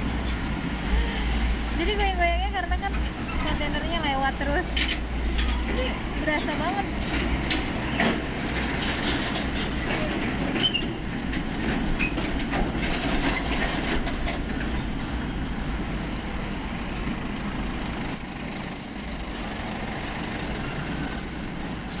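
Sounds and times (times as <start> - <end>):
trailers clanking and rattling: 0.0 - 22.0
trucks rumbling past: 0.0 - 22.0.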